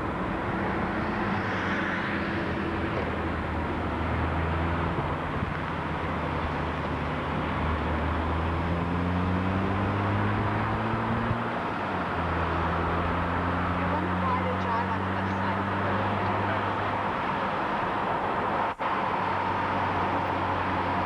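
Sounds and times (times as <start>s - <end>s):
car engine from inside car: 3.0s - 21.0s.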